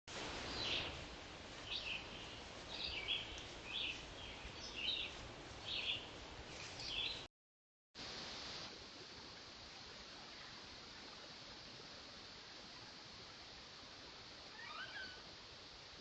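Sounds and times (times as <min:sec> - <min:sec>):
steady hiss: 0:00.1 - 0:07.3, 0:08.0 - 0:16.0
bird calling: 0:14.6 - 0:15.2.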